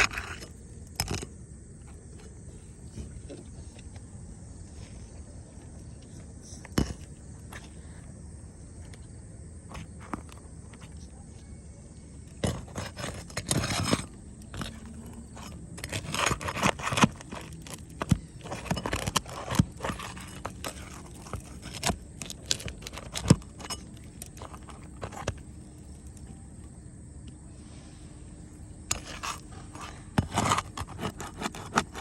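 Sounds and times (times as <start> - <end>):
scraping and crunching: 0.0 - 32.0.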